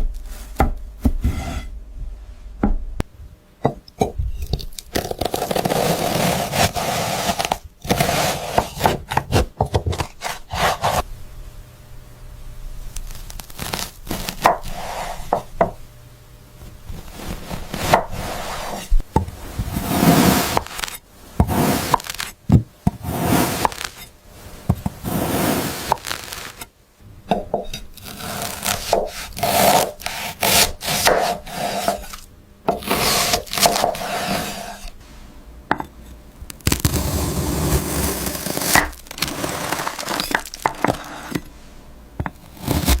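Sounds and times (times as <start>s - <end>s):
blade sawing and scraping: 5.3s - 11.1s, 13.5s - 15.6s, 16.9s - 22.4s, 23.0s - 24.1s, 25.0s - 26.7s, 27.6s - 35.0s, 36.8s - 41.6s, 42.4s - 43.0s.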